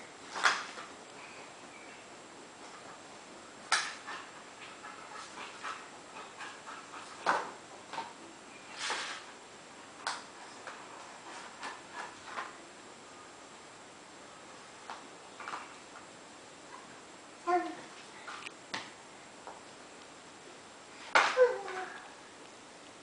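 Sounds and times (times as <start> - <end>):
child yipping: 21.2 - 22.1.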